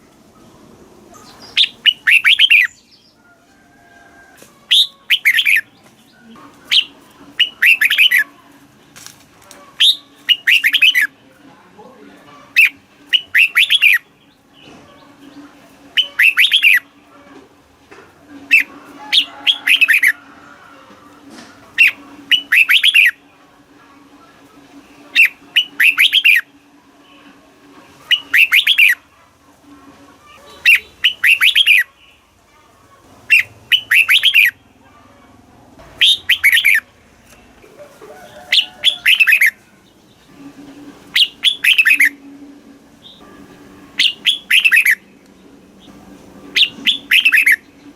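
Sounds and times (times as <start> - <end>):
faint steady hum: 0.0 - 47.9
bird singing warbled notes: 1.1 - 3.2, 4.7 - 5.8, 6.6 - 8.3, 9.8 - 11.2, 12.4 - 17.0, 18.4 - 20.2, 21.7 - 23.4, 24.9 - 27.4, 28.0 - 29.1, 30.4 - 32.2, 33.3 - 34.8, 36.0 - 36.9, 38.5 - 47.9.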